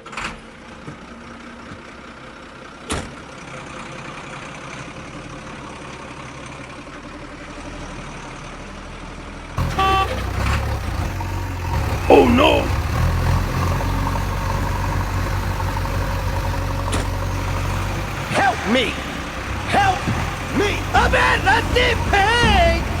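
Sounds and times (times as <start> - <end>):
tractor engine running: 9.6 - 23.0
short horn tone: 9.7 - 10.3.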